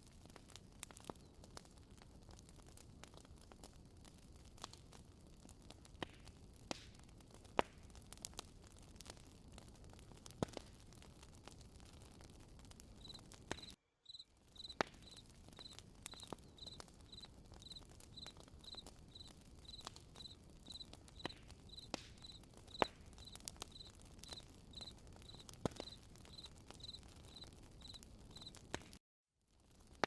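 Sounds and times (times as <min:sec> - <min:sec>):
campfire crackling and popping: 0:00.0 - 0:30.0
cricket chirping: 0:13.0 - 0:28.5.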